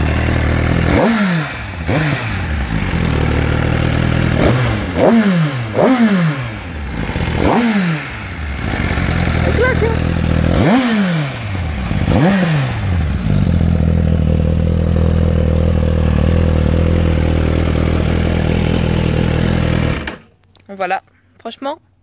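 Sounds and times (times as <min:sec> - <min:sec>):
motorcycle engine revving and idling: 0:00.0 - 0:20.3.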